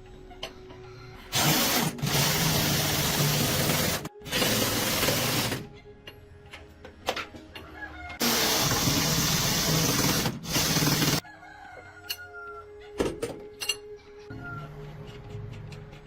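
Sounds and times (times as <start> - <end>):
power tool hissing: 8.2 - 11.2.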